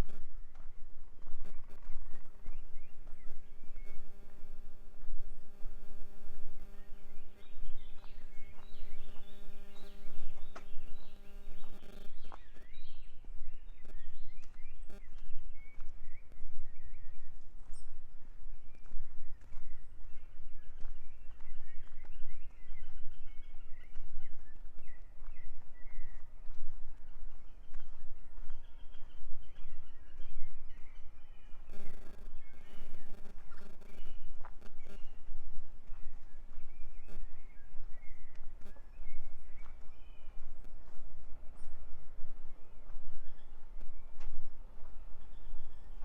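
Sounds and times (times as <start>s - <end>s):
low mechanical hum: 0.0s - 46.0s
small birds chirping: 5.8s - 46.0s.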